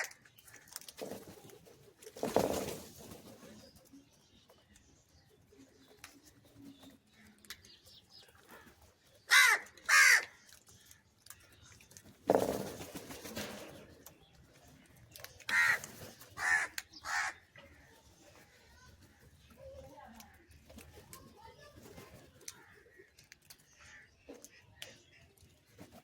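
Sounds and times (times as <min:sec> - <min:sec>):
crow cawing: 0:09.3 - 0:10.3, 0:15.5 - 0:15.8, 0:16.4 - 0:17.4.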